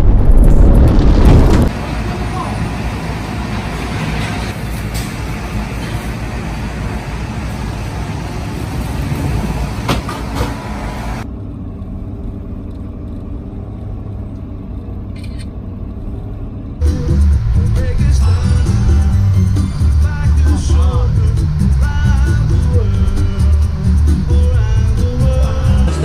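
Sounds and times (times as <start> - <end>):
wind and water rushing: 0.0 - 1.8
boat engine running: 16.8 - 26.0
music: 16.8 - 26.0.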